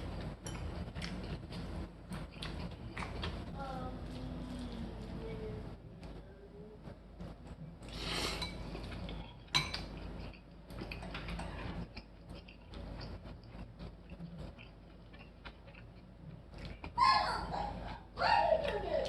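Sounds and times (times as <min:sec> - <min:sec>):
dishes and cutlery clinking: 0:08.3 - 0:10.1.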